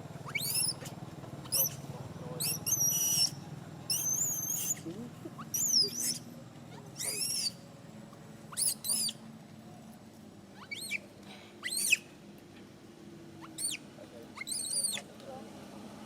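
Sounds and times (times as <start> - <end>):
baby monkey squealing cries: 0.2 - 1.8, 2.4 - 7.6, 8.5 - 9.2, 10.6 - 11.0, 11.6 - 12.1, 13.4 - 13.8, 14.4 - 15.1.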